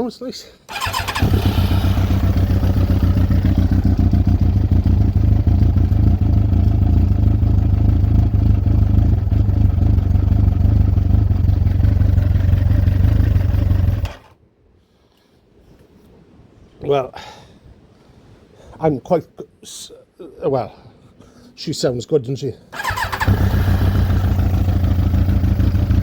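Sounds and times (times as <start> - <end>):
motorcycle engine idling: 0.7 - 14.3, 22.8 - 26.0.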